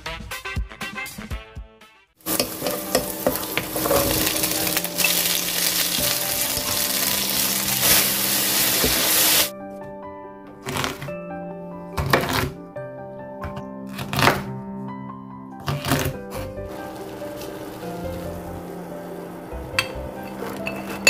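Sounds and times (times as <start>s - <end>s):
background music: 0.0s - 21.0s
garlic sizzling in hot oil: 2.2s - 9.5s, 16.7s - 21.0s
wooden spatula stirring: 2.3s - 9.5s, 15.8s - 21.0s.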